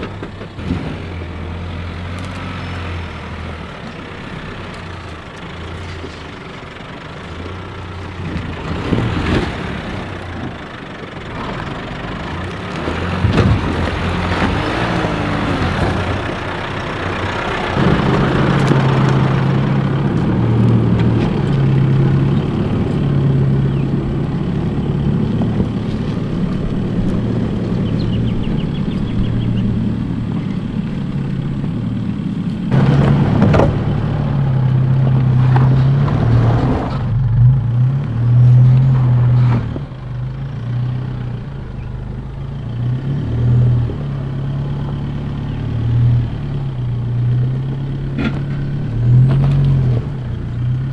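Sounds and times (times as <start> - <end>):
truck engine under load: 0.0 - 50.9
tyres knocking over rocks: 12.3 - 37.1, 46.6 - 50.9.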